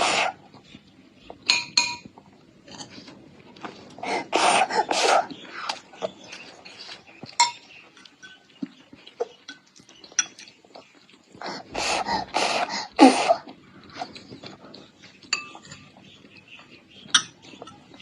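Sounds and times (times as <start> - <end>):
spoon clinking against dish: 1.5 - 2.1, 7.4 - 8.5, 9.5 - 10.5, 15.3 - 15.9, 17.1 - 18.0
baby vocalizing: 4.0 - 5.3, 11.4 - 13.5.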